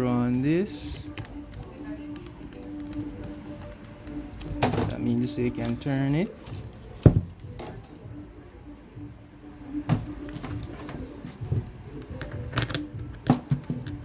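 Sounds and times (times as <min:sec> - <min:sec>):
grinder parts knocking and clicking: 0:12.2 - 0:14.0.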